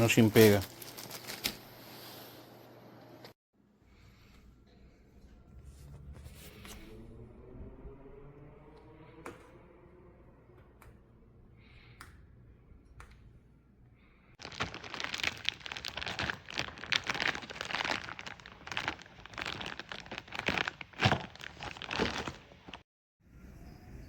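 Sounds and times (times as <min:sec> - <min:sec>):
plastic crinkling: 0:00.0 - 0:01.8, 0:14.4 - 0:22.8.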